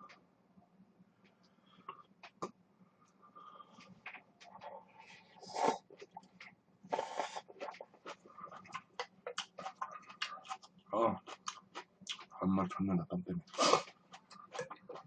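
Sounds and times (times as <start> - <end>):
person chewing: 3.8 - 12.4, 13.5 - 15.0
noodles slurping: 6.9 - 10.7.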